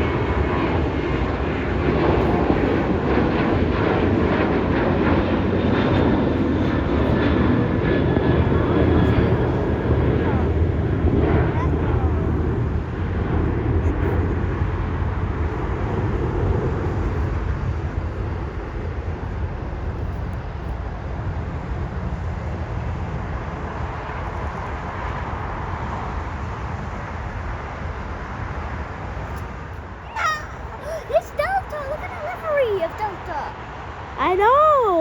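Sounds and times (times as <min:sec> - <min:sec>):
jet engines rumbling: 0:00.0 - 0:19.7, 0:28.3 - 0:35.0.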